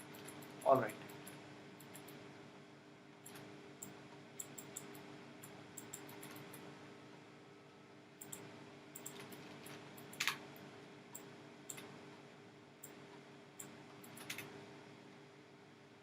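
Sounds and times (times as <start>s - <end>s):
steady low hum: 0.0s - 16.0s
mouse and keyboard clicks: 4.4s - 6.6s, 9.0s - 10.4s, 11.7s - 11.9s, 13.6s - 14.5s.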